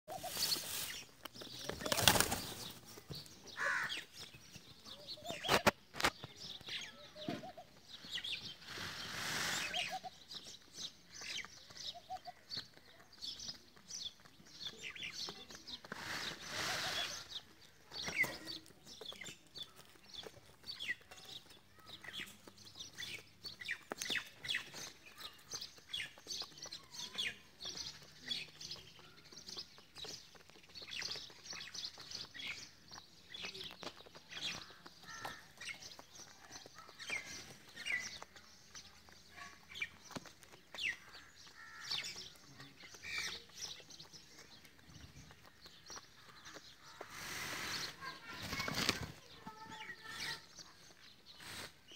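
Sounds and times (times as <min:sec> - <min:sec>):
birds chirping: 0:00.1 - 0:51.9.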